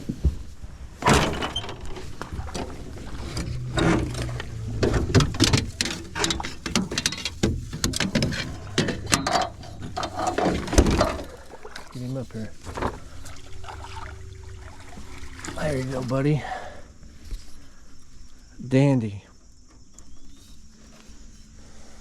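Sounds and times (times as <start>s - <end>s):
knocks and thumps in boat: 0.0s - 17.2s.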